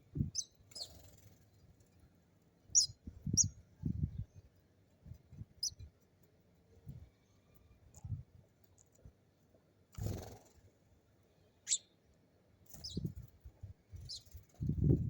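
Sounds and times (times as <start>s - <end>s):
small bird chirping: 0.1s - 2.0s, 2.6s - 5.9s, 11.6s - 12.0s, 12.6s - 13.3s, 13.9s - 15.0s.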